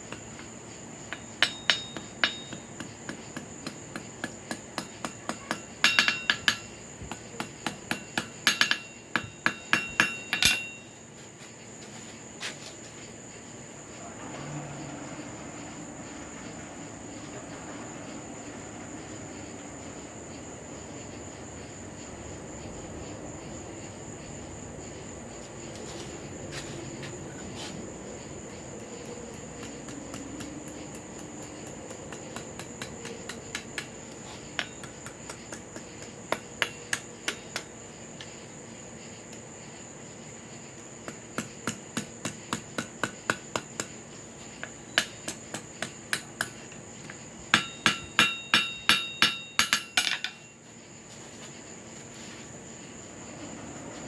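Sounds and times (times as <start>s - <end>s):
hammer blows on anvil: 1.1s - 11.0s, 47.5s - 50.5s.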